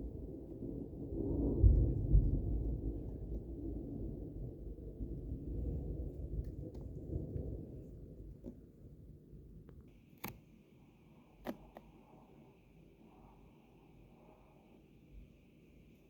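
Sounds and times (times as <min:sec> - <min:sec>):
thunder rumble: 0:00.0 - 0:09.7
sharp clicks: 0:10.2 - 0:10.5, 0:11.4 - 0:12.0.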